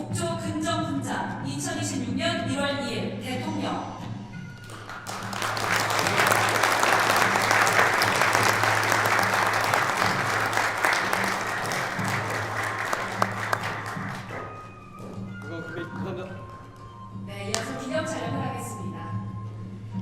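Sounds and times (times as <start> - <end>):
audience applauding: 4.6 - 14.7.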